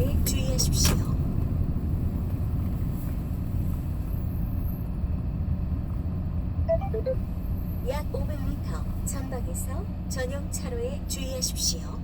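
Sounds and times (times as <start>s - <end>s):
truck engine rumble: 0.0s - 11.1s
road noise: 0.0s - 12.0s
brief tone: 6.7s - 7.3s.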